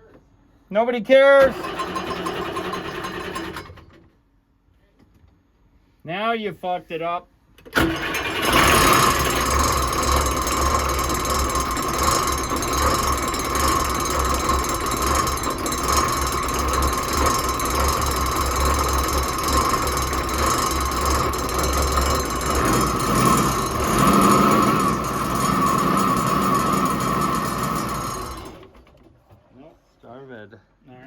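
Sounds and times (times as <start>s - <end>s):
diesel engine cranking on starter: 1.4s - 4.1s, 7.6s - 29.4s.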